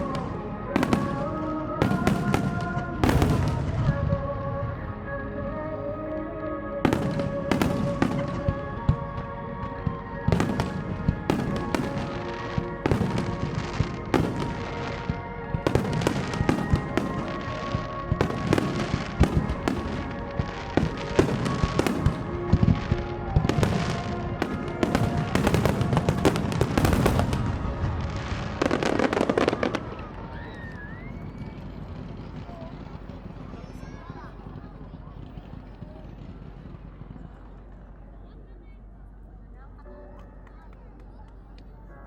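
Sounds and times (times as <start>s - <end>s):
fireworks bursting: 0.0s - 4.6s, 6.8s - 37.8s
music playing: 0.0s - 32.1s.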